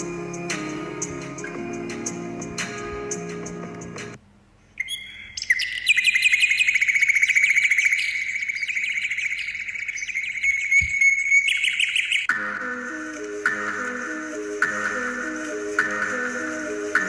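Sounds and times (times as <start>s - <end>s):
bird singing fast trill: 4.8s - 12.3s.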